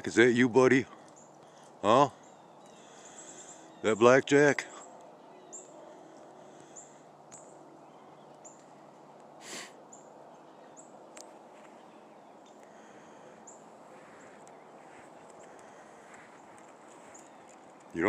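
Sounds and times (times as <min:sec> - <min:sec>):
small birds chirping: 0:00.0 - 0:18.0
breathy rush of noise: 0:04.6 - 0:17.8.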